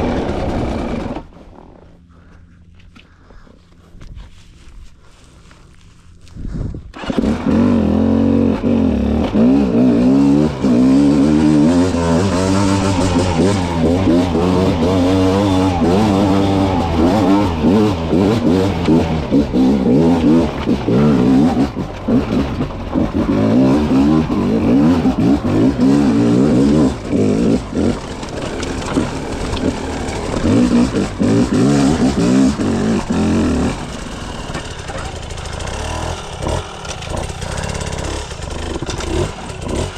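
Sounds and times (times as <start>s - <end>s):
two-stroke dirt bike engine revving: 0.0s - 1.3s, 6.9s - 39.9s.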